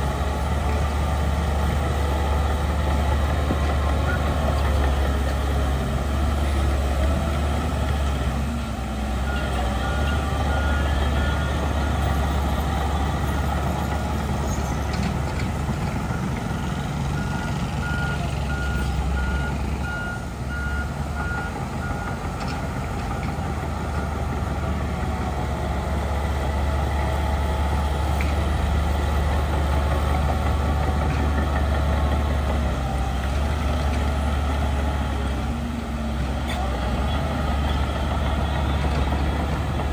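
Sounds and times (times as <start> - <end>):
heavy diesel engines running: 0.0 - 39.9
reversing alarm beeping: 9.2 - 13.9, 16.1 - 22.2.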